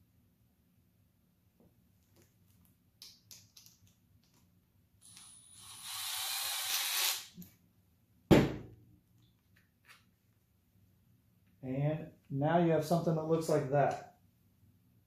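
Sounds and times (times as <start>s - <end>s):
loud knock: 8.3s - 8.7s.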